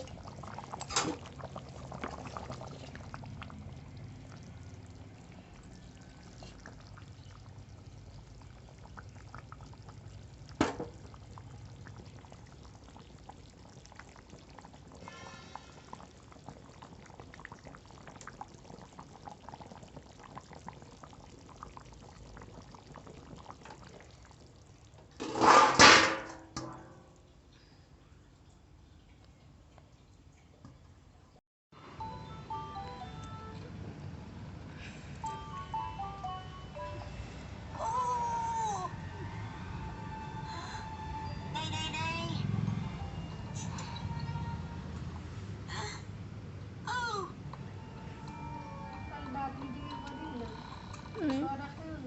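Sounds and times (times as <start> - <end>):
liquid in a pot: 0.0 - 31.4, 49.4 - 52.0.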